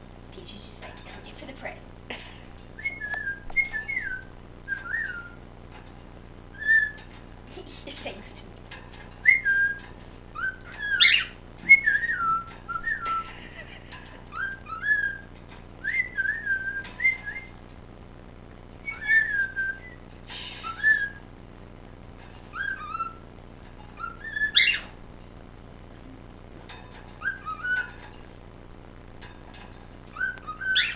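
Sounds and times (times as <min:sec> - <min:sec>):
cockatiel whistling: 0:02.8 - 0:05.4, 0:06.5 - 0:07.1, 0:09.2 - 0:13.3, 0:14.3 - 0:17.6, 0:18.8 - 0:21.2, 0:22.5 - 0:23.3, 0:24.0 - 0:25.0, 0:27.2 - 0:28.0, 0:30.1 - 0:30.9.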